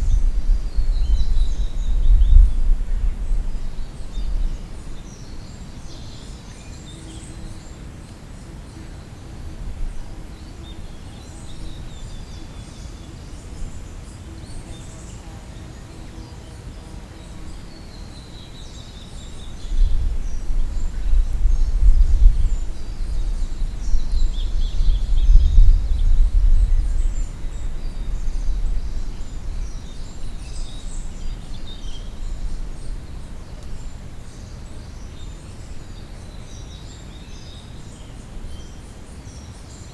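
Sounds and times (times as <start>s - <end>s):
low gusting rumble: 0.0s - 5.5s, 19.4s - 36.3s.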